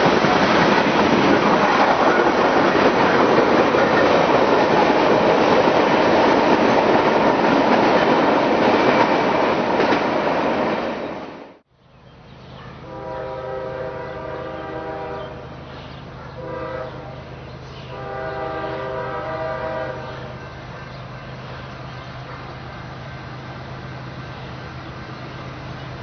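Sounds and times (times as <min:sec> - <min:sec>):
train rumble: 0:00.0 - 0:11.6, 0:12.2 - 0:26.0
locomotive air horn: 0:12.8 - 0:15.5, 0:16.4 - 0:17.2, 0:17.9 - 0:20.9.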